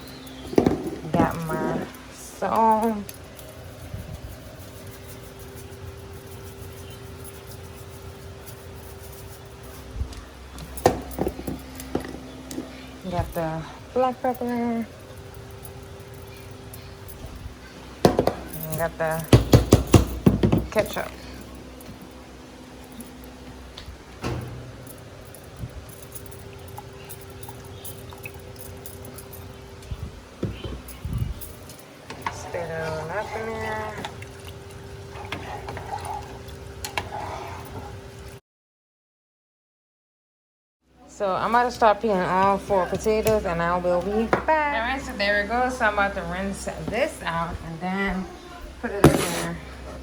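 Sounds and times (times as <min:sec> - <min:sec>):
faint constant tone: 0:00.0 - 0:38.4
low kitchen hum: 0:00.0 - 0:38.4, 0:40.9 - 0:50.0.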